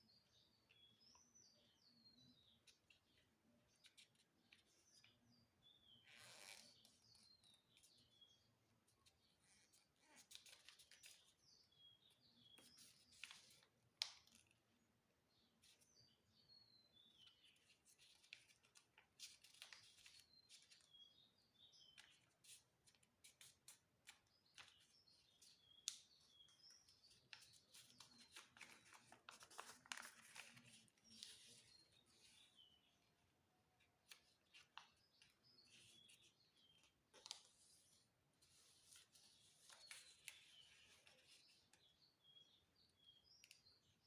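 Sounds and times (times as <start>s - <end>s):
bird chirping: 0.0s - 13.6s, 14.7s - 44.0s
paper being folded: 9.6s - 11.4s, 17.2s - 20.9s, 22.0s - 32.5s, 34.0s - 41.7s.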